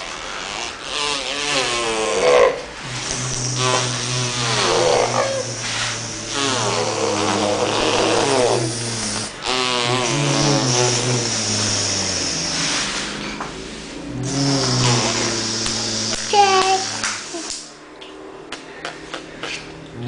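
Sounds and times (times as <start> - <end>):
child making airplane noise: 2.9 - 7.9, 14.2 - 17.6.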